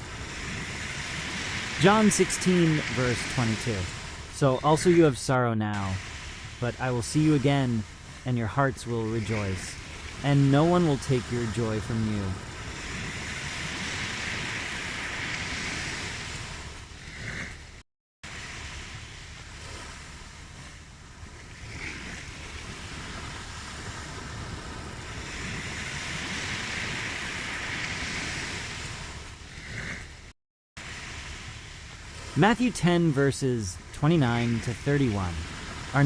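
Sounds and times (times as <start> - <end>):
ocean waves washing on shore: 0.0 - 36.0.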